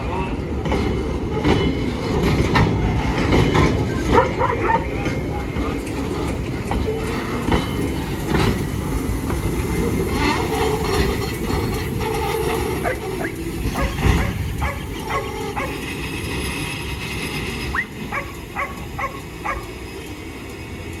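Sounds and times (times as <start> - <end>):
freight train rumbling: 0.0 - 21.0
dog barking: 4.1 - 5.0, 12.8 - 15.8, 17.7 - 19.8.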